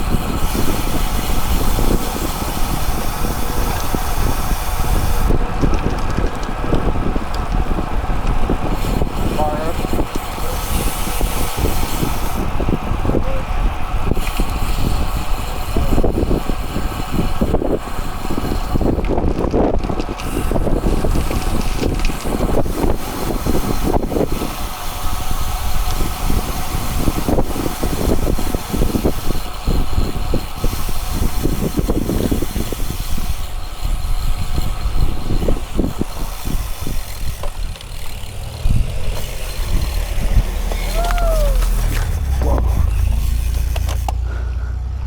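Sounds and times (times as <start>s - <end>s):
road noise: 0.0s - 45.0s
wind buffeting microphone: 0.0s - 45.0s.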